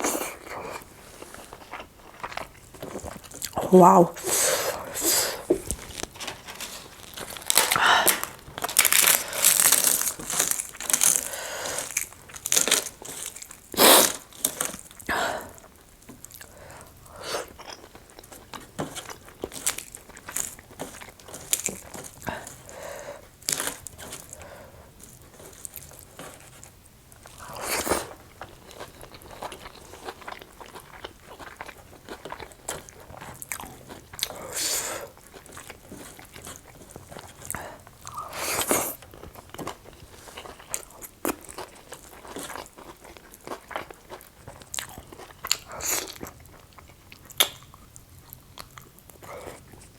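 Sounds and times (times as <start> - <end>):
chewing and crunching food: 0.0 - 49.9.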